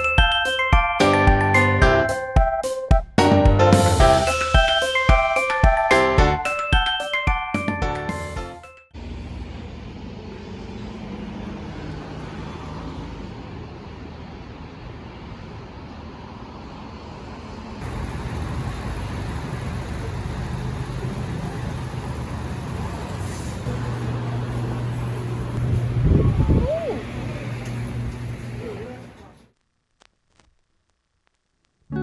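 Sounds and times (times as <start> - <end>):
car running with road rumble: 9.0 - 29.5.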